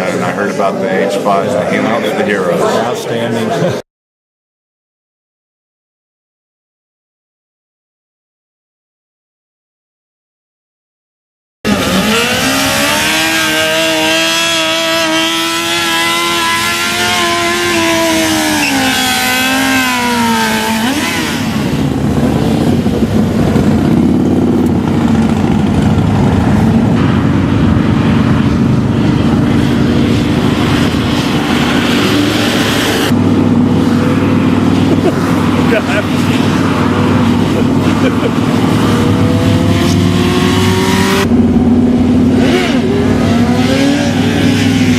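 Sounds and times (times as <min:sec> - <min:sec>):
rumble of motorcycles running: 0:11.7 - 0:44.9.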